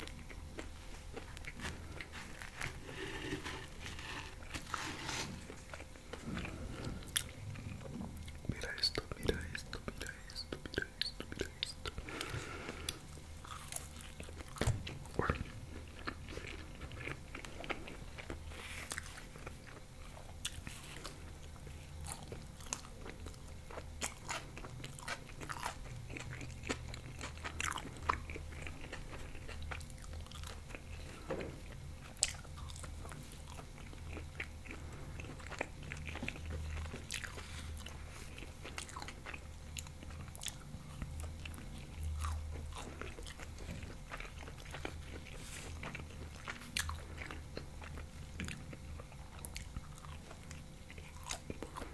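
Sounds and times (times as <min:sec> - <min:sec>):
chewing with wet mouth clicks: 0:32.0 - 0:51.9.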